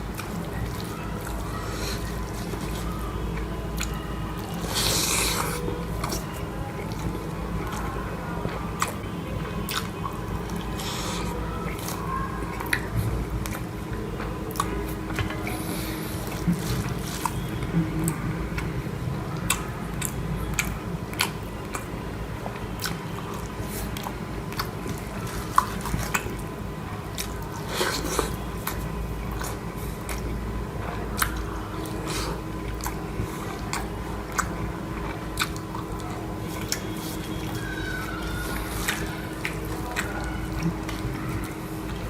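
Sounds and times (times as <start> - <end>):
person chewing food: 0.0 - 42.0.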